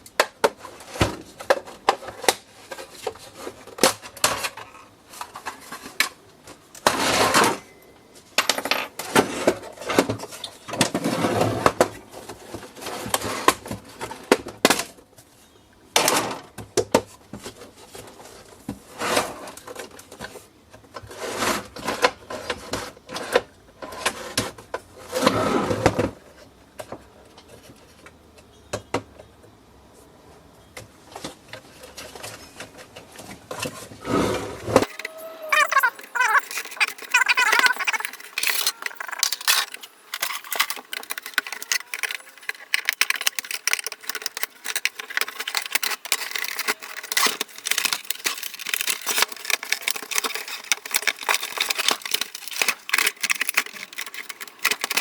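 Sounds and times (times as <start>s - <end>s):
scraping and clattering: 34.7s - 55.0s
plastic and metal parts rattling: 34.8s - 55.0s.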